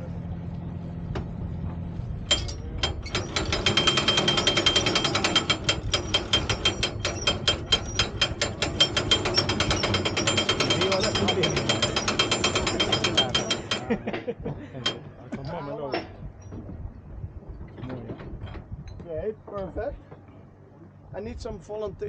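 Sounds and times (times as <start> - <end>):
boat engine hum: 0.0 - 21.8
ratchet winch clicking: 2.4 - 14.0.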